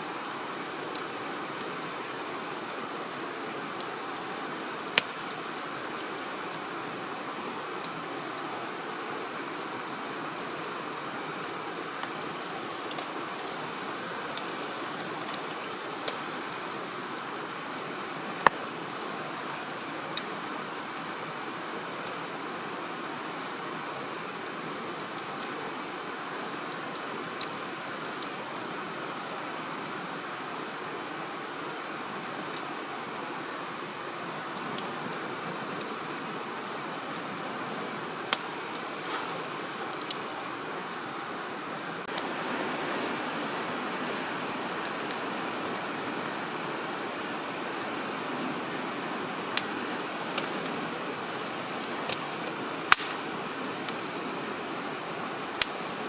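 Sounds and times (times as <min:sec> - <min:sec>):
firewood crackling and popping: 0:00.2 - 0:29.4, 0:33.8 - 0:42.4, 0:44.7 - 0:46.3, 0:49.5 - 0:56.0
fire rushing hiss: 0:38.3 - 0:42.3, 0:52.0 - 0:53.6.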